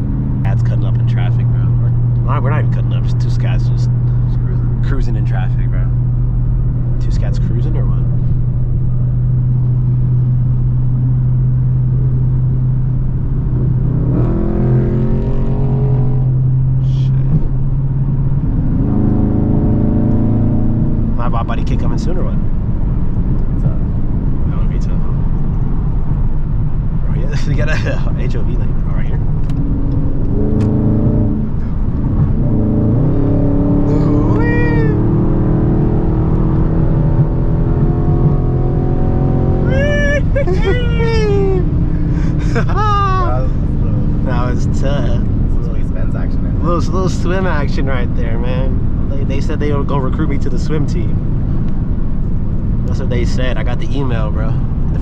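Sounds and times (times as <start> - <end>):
car exhaust droning: 0.0 - 55.0
car exhaust revving: 0.0 - 55.0
short high wail: 39.6 - 41.8.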